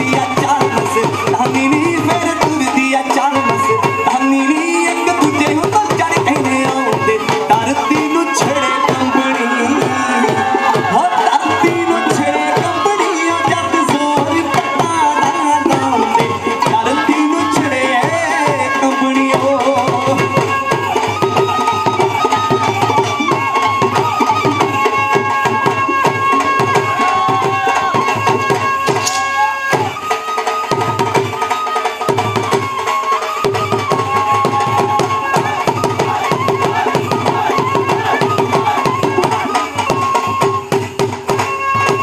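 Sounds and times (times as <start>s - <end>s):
fast drum beat: 0.0s - 29.9s, 30.7s - 42.0s
held melody line: 0.0s - 42.0s.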